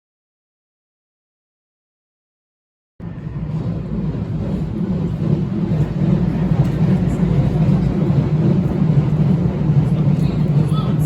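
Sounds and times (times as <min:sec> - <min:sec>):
train rumbling: 0:03.0 - 0:11.0.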